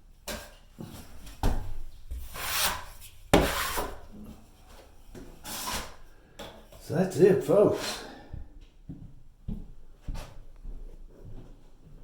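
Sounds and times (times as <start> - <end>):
drywall knife scraping compound: 0.3 - 6.9, 7.7 - 8.2.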